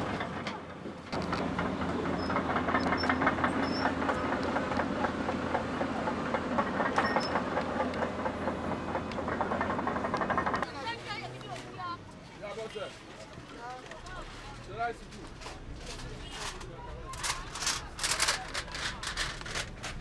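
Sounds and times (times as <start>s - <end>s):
metallic clattering and rattling: 14.6s - 20.0s.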